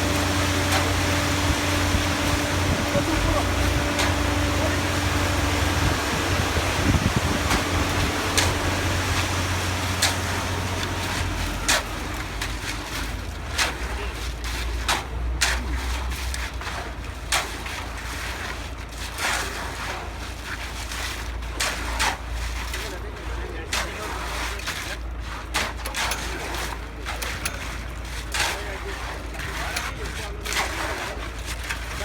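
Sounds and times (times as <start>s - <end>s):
engine running at low pitch: 0.0s - 20.2s.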